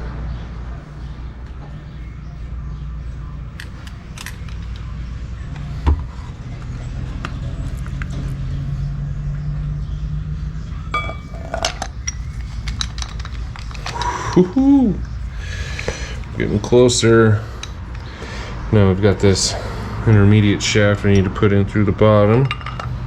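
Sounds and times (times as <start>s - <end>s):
steady low hum: 0.0s - 22.8s
light metal clicks and clinks: 11.0s - 18.2s.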